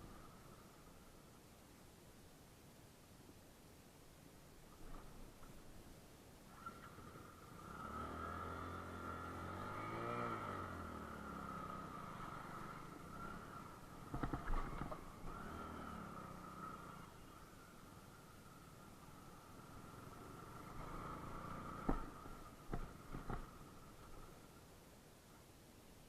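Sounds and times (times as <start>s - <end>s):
motorcycle engine revving: 6.5s - 24.4s.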